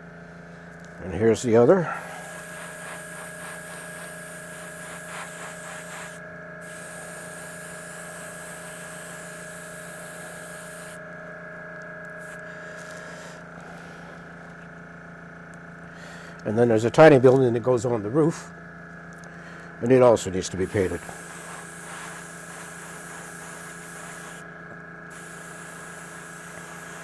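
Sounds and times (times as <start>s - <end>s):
compressor hum and whine: 0.0s - 27.0s
airbrush spraying hiss: 2.0s - 11.0s, 12.2s - 13.4s, 20.6s - 24.4s, 25.1s - 27.0s.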